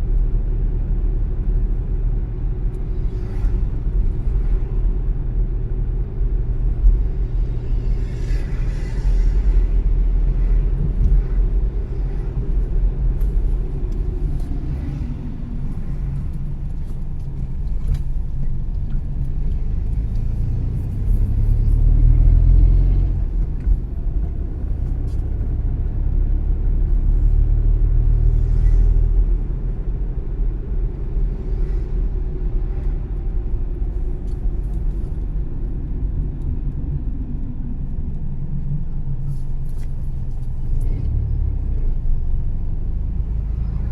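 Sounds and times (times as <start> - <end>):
car engine rumble: 0.0 - 43.9
tyre road noise: 0.0 - 43.9.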